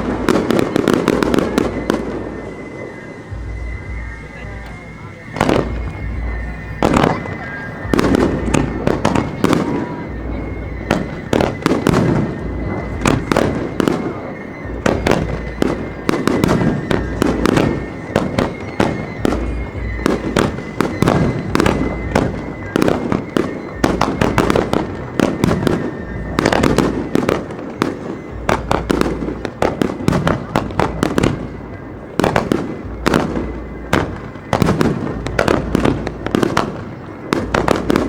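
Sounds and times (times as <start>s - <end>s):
deep rolling booms: 0.0s - 27.4s
fireworks bangs: 0.0s - 38.0s.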